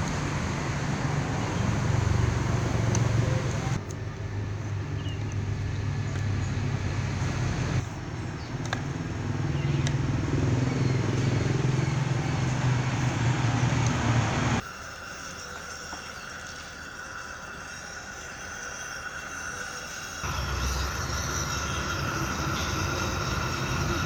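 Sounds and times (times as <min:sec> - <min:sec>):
electric drill motor running: 0:18.5 - 0:24.0.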